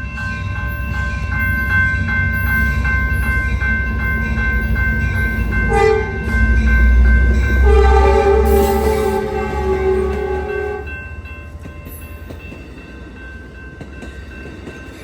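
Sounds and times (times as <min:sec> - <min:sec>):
crossing bell ringing: 0:00.0 - 0:15.0
train rumbling: 0:00.0 - 0:15.0
train horn blast: 0:05.7 - 0:06.4, 0:07.5 - 0:10.9.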